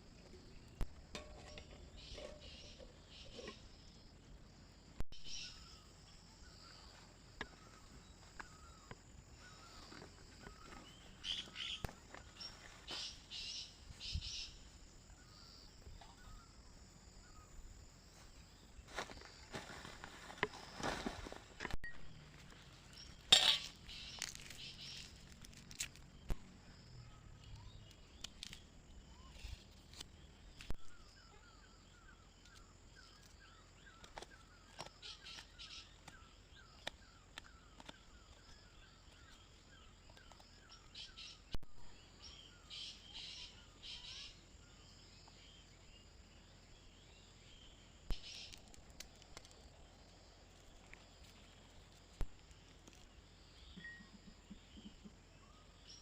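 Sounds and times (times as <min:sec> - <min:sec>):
birds chirping: 0:05.2 - 0:19.6, 0:20.5 - 0:25.4.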